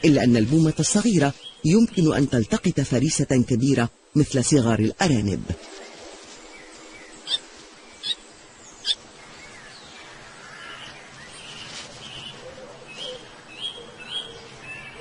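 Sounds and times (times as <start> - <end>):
bird chip call: 7.2 - 7.4.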